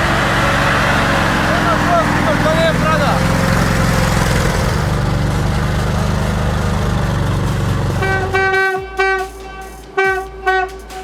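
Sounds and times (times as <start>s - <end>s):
diesel engine running: 0.0s - 9.0s
horn short toots: 7.6s - 11.0s.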